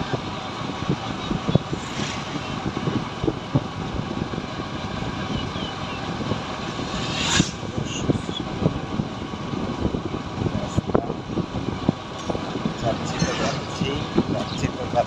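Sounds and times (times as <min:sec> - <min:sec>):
motorcycle engine and road noise: 0:00.0 - 0:15.0
wind buffeting microphone: 0:00.0 - 0:15.0
brief whoosh: 0:01.6 - 0:03.0, 0:06.4 - 0:08.4, 0:12.8 - 0:14.3.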